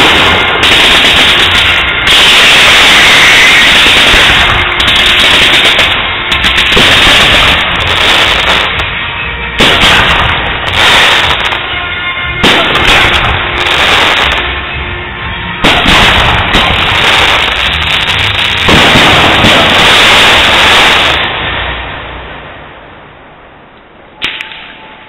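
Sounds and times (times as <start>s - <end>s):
bursting firework shells: 0.0s - 8.9s, 9.6s - 11.7s
fireworks bangs: 0.0s - 22.4s.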